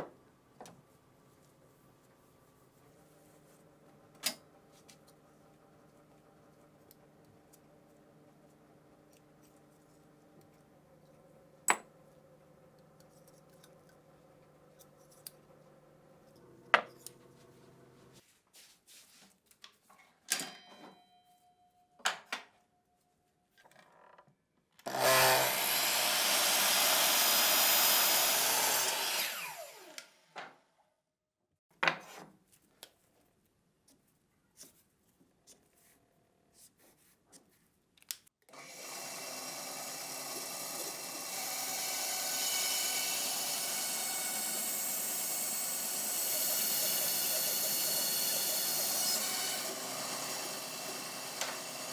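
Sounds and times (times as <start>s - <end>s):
power tool running: 24.8s - 30.3s, 38.5s - 51.9s.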